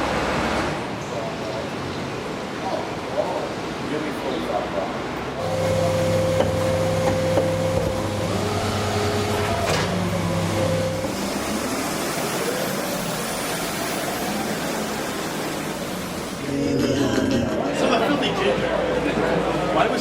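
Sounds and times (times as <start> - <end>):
street noise: 0.0 - 20.0
garbage truck engine hum: 5.4 - 16.8.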